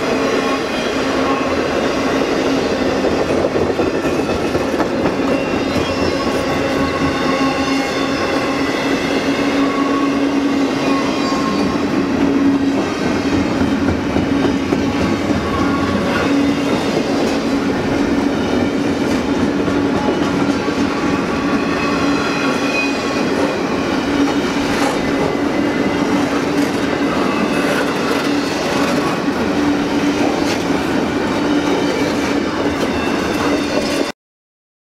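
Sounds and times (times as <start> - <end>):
train wheels clacking over rails: 2.0 - 34.1
high-pitched wheel squeal: 5.2 - 8.7, 9.4 - 11.9.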